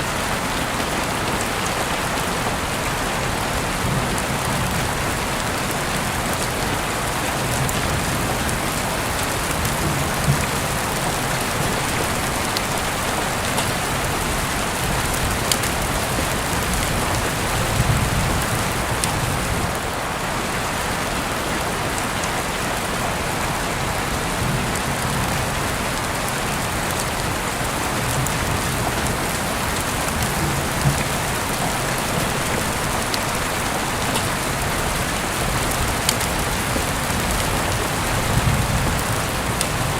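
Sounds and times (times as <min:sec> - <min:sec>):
heavy rain hiss: 0:00.0 - 0:39.9
raindrops striking close by: 0:00.0 - 0:39.9.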